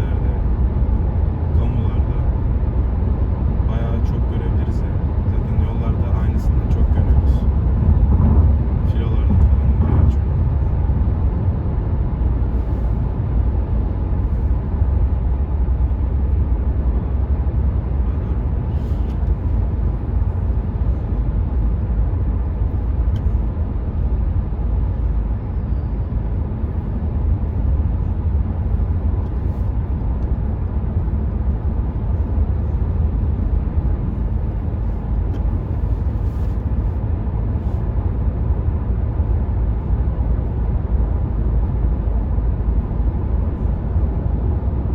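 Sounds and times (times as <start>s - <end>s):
tyre and road rumble: 0.0s - 44.9s
wind noise: 6.6s - 18.0s.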